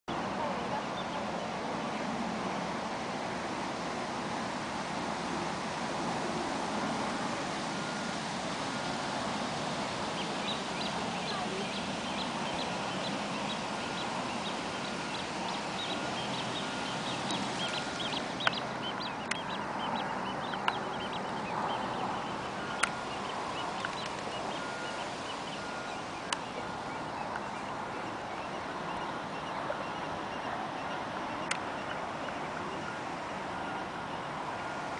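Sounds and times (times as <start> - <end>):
birds chirping: 0.1 - 2.1, 6.7 - 34.8
outdoor hiss: 1.7 - 19.2.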